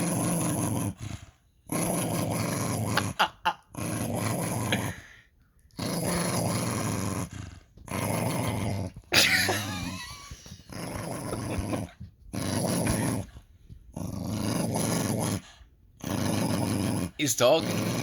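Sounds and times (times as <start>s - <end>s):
dog vocalizing: 12.6s - 13.4s.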